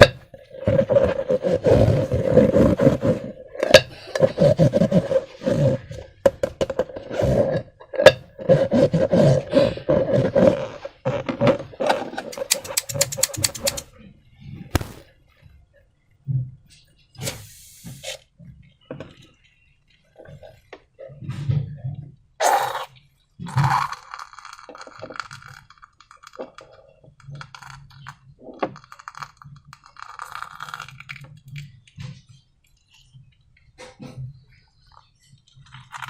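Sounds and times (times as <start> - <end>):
slime squelching: 12.2 - 13.8
balloon crinkles and clicks: 14.7 - 15.0.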